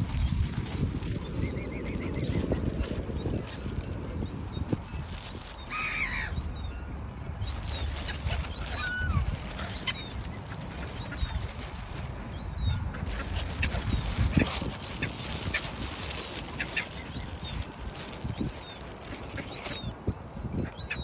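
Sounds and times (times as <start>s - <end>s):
bird squawk: 5.7s - 6.5s, 7.9s - 10.2s.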